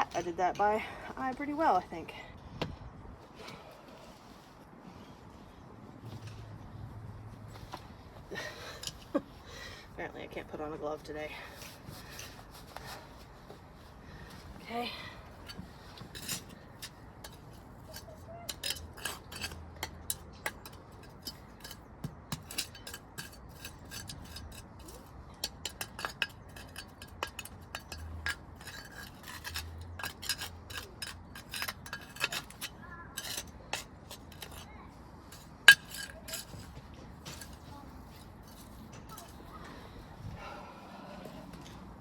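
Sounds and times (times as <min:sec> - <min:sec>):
brick pavers clinking together: 0:15.4 - 0:39.7.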